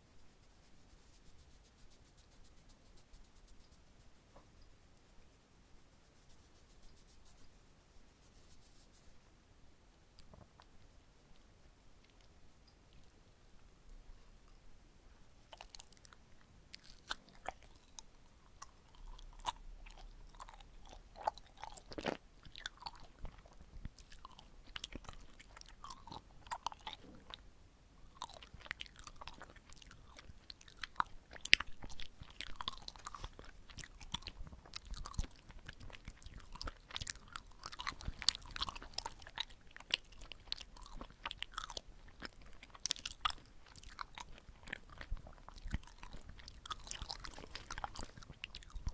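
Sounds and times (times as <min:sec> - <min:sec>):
wet chewing mouth sounds: 0:15.5 - 0:27.4, 0:28.0 - 0:48.9.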